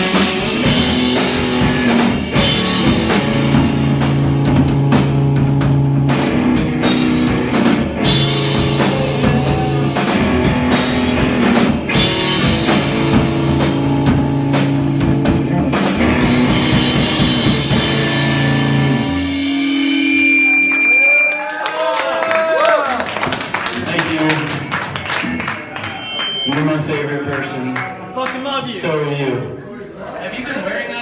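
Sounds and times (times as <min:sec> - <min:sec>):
drum kit pounding: 0:00.0 - 0:20.9, 0:22.9 - 0:25.7
rock band playing live: 0:00.0 - 0:21.3, 0:23.0 - 0:28.1.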